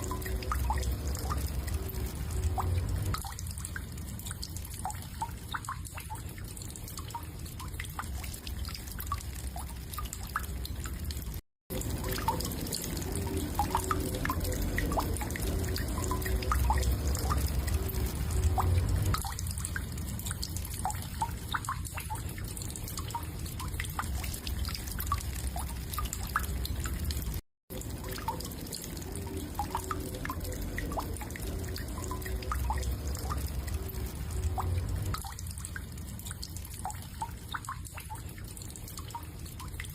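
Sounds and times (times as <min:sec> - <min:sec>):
steady low rumble: 0:00.0 - 0:03.8, 0:13.0 - 0:20.0, 0:29.1 - 0:36.0
water dripping and trickling: 0:00.0 - 0:39.9.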